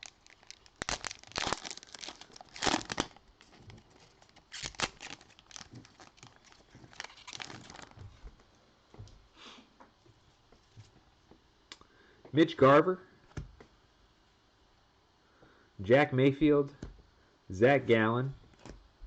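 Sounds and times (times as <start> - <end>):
card pack wrapper tearing and crinkling: 0.0 - 8.0.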